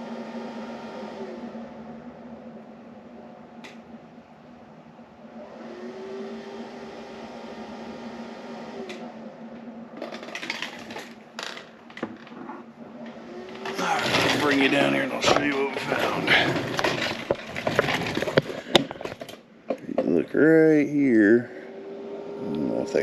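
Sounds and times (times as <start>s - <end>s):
clicks and rattles: 10.0s - 20.2s
small electric motor humming: 21.6s - 23.0s.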